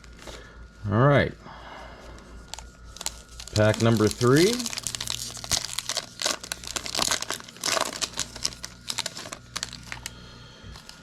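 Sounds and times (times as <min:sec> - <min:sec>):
wrapper tearing and crinkling: 0:02.5 - 0:10.1.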